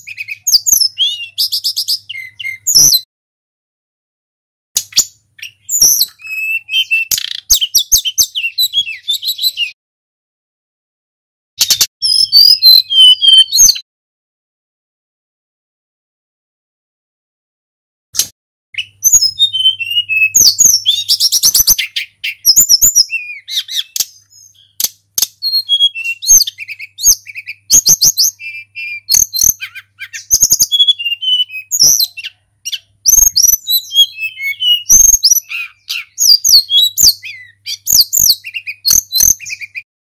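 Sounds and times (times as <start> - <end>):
songbird singing: 0.0 - 3.1, 4.8 - 9.8, 11.6 - 13.8, 18.8 - 39.9.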